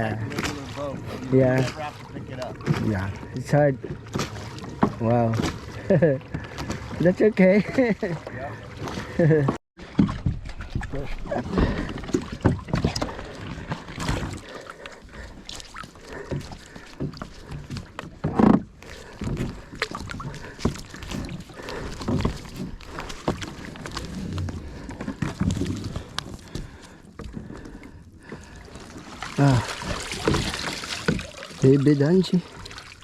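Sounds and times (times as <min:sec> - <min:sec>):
gear knocking against kayak: 0:02.4 - 0:07.0, 0:08.8 - 0:28.6.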